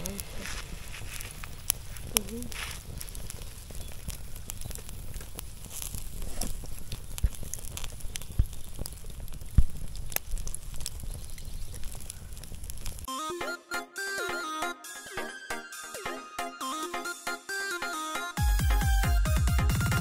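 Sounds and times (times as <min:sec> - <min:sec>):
crackles and clicks: 0:00.0 - 0:13.1
music: 0:13.1 - 0:20.0.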